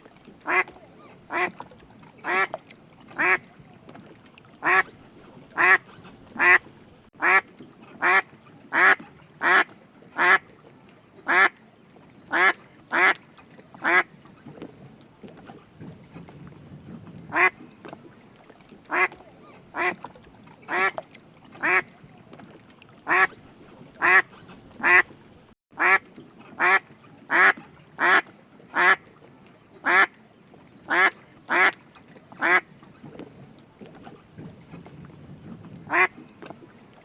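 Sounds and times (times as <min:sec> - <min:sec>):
duck quacking: 0:00.5 - 0:00.7, 0:01.3 - 0:01.5, 0:02.2 - 0:02.5, 0:03.2 - 0:03.4, 0:04.6 - 0:04.9, 0:05.6 - 0:06.6, 0:07.2 - 0:07.4, 0:08.0 - 0:10.4, 0:12.3 - 0:13.2, 0:17.3 - 0:17.5, 0:18.9 - 0:19.2, 0:19.8 - 0:20.0, 0:20.7 - 0:21.0, 0:21.6 - 0:21.9, 0:23.1 - 0:23.3, 0:24.0 - 0:25.1, 0:25.8 - 0:26.0, 0:26.6 - 0:28.2, 0:28.8 - 0:29.0, 0:29.9 - 0:30.1, 0:30.9 - 0:31.8, 0:32.4 - 0:32.6, 0:35.9 - 0:36.1.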